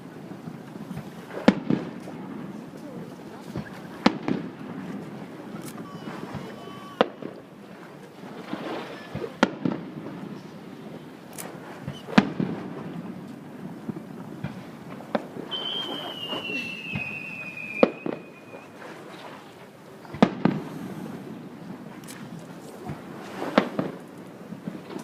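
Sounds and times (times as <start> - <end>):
fireworks bangs and booms: 0.0 - 25.0
high descending whistle: 15.5 - 18.8.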